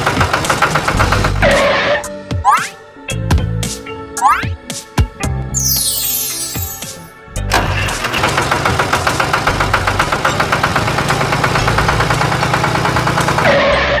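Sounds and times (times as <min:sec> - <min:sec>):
engine chugging: 0:00.0 - 0:01.8, 0:07.4 - 0:13.8.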